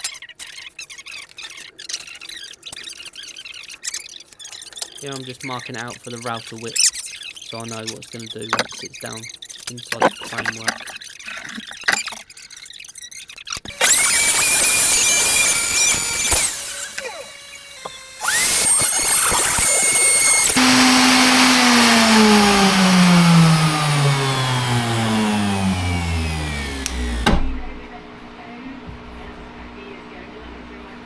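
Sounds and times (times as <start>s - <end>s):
wood router high whine: 13.7s - 27.9s.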